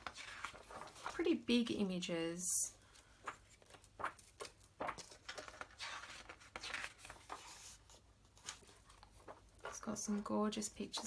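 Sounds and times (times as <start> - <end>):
book pages turning: 0.0 - 1.2, 3.0 - 9.8.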